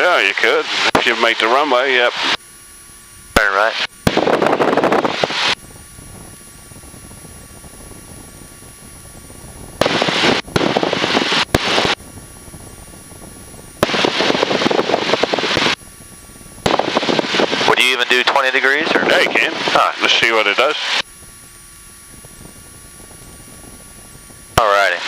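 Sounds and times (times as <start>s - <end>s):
low steady engine hum: 0.0s - 25.0s
bursts of rushing noise: 3.4s - 5.6s, 13.8s - 15.8s, 16.6s - 17.8s.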